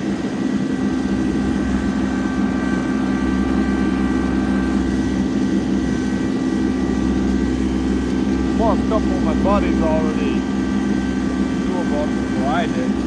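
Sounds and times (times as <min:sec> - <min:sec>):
tractor engine running: 0:00.5 - 0:13.0.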